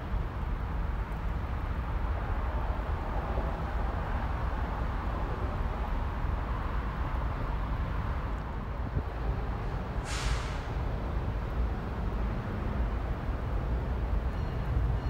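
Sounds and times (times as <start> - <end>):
freight train wheels rumbling on rail: 0.0 - 15.0.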